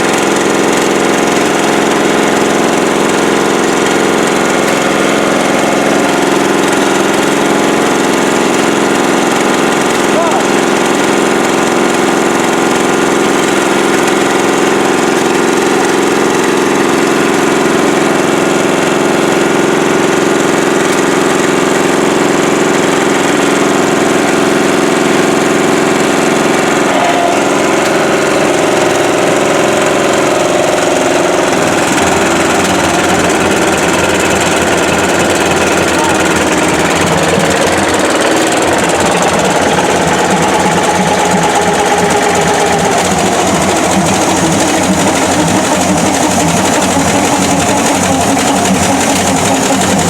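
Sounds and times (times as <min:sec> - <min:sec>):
engine running: 0:00.0 - 0:50.0.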